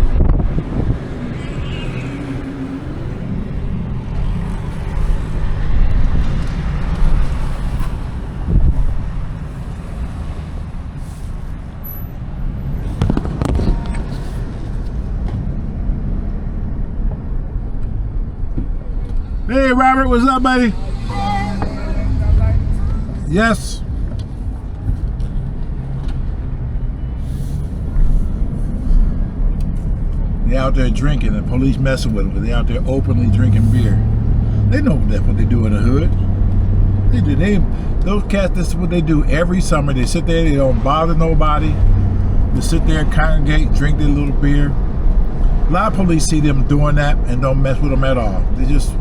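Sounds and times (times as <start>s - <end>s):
wind noise on microphone: 0.0s - 19.5s
car driving rumble: 0.0s - 49.0s.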